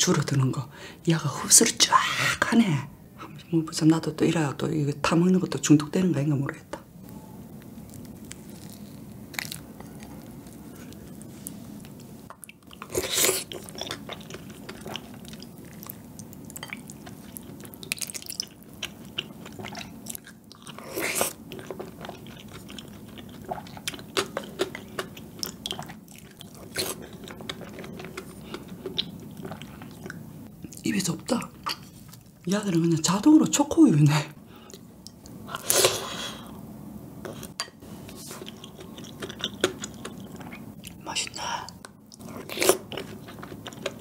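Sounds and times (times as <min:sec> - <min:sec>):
wet chewing and mouth sounds: 0:07.0 - 0:30.9, 0:37.2 - 0:44.0.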